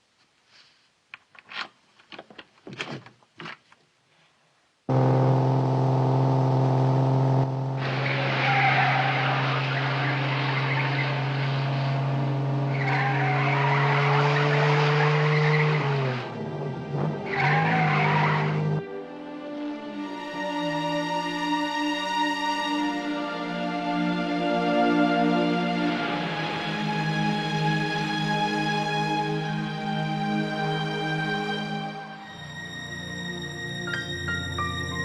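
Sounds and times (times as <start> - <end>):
tyre and road noise: 4.9 - 18.8
car engine at speed: 4.9 - 18.9.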